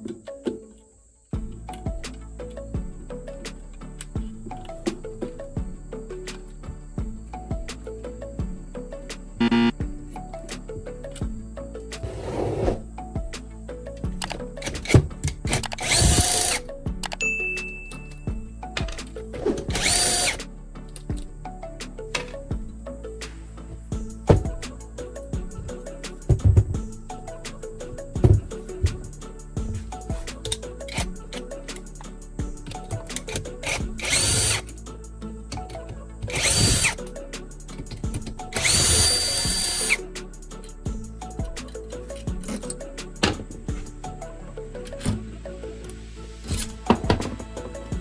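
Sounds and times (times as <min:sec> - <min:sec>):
background music: 0:00.0 - 0:48.0
power tool running: 0:14.7 - 0:16.6, 0:19.4 - 0:20.4, 0:33.3 - 0:34.6, 0:36.3 - 0:37.0, 0:38.1 - 0:40.0.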